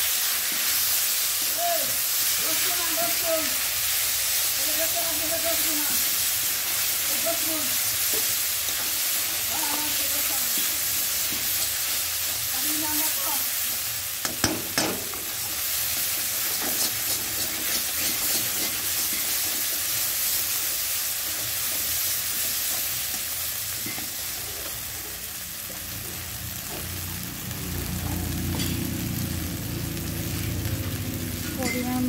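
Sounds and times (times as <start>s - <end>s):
mushrooms sizzling in a pan: 0.0s - 32.0s
spatula scraping a pan: 15.2s - 20.5s.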